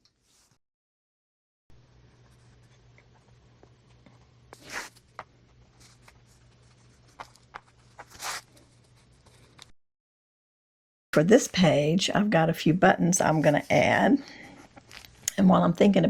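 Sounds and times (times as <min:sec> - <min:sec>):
low steady hum: 0:01.7 - 0:09.7, 0:11.2 - 0:16.0
paper ripping: 0:04.6 - 0:05.1, 0:07.0 - 0:09.4
paper rustling: 0:04.6 - 0:09.7.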